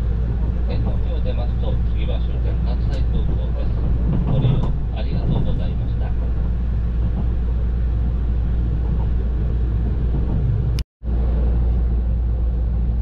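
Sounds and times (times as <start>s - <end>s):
passenger train rumbling: 0.0s - 13.0s.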